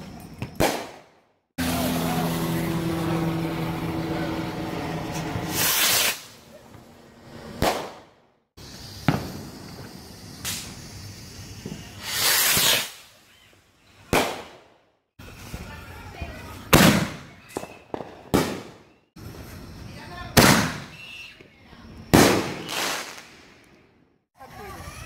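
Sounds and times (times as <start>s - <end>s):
fireworks hissing and cracking: 5.1s - 25.0s.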